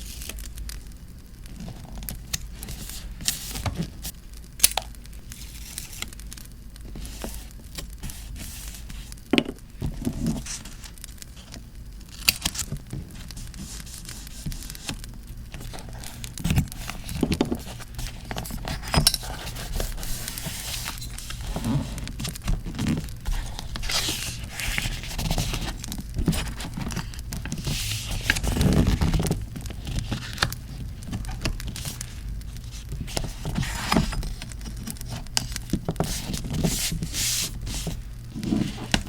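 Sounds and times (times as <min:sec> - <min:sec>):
paper rustling and tearing: 0:12.1 - 0:39.0.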